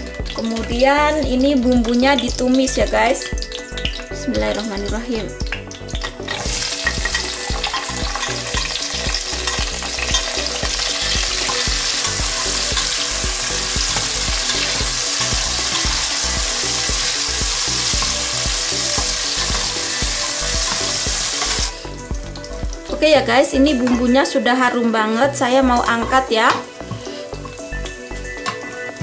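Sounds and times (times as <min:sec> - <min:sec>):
ingredients sizzling in oil: 0:00.0 - 0:29.0.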